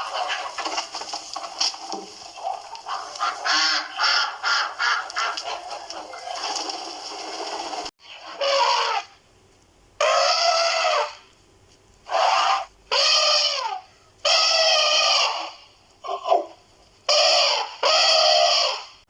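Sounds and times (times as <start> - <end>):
flock of birds calling: 0.0 - 9.1, 12.1 - 16.5, 17.1 - 18.9
loud bird calls: 10.0 - 11.3, 12.1 - 19.0.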